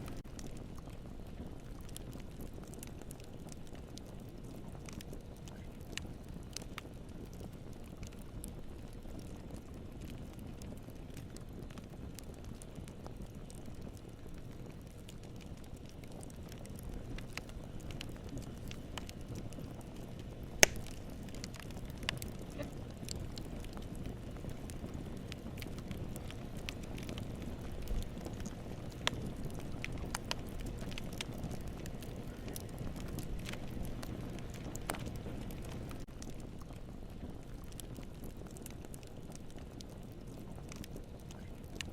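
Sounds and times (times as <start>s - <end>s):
campfire crackling and popping: 0.0s - 41.9s.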